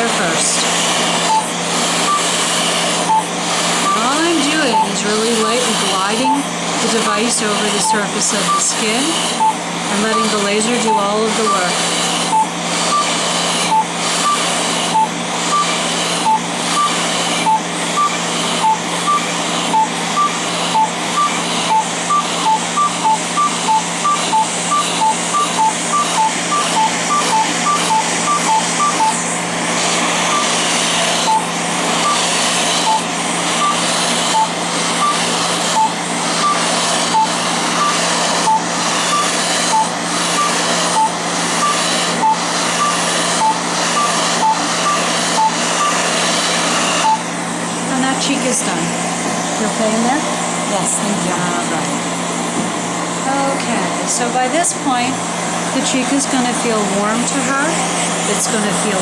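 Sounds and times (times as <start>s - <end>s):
laser handpiece beeping: 0.0s - 29.4s, 30.0s - 47.3s
cold air hose rushing: 0.2s - 47.9s.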